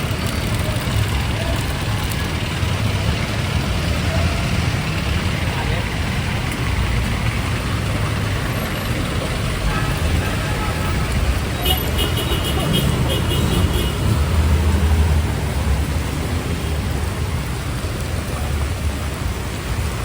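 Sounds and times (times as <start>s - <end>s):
rain hissing: 0.0s - 20.0s
tyres on wet road: 0.0s - 20.0s
vehicle engines rumbling: 0.0s - 20.0s.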